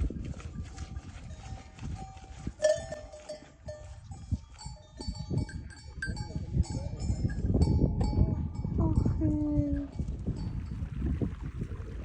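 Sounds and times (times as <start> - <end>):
small metal bells clinking: 1.2 - 8.7.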